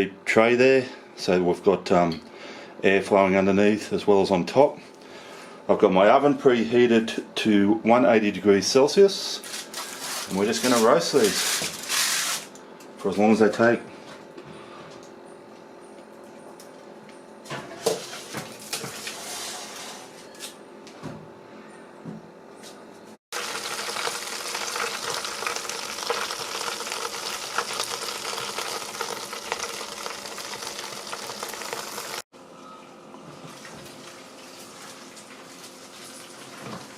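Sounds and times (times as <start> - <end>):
chicken sizzling with popping fat: 23.4 - 32.2.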